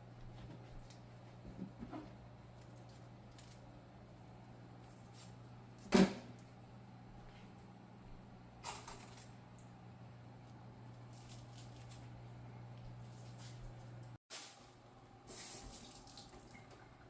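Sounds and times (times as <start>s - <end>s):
steady low hum: 0.0s - 15.3s
sharp knocks in kitchen: 5.9s - 6.3s.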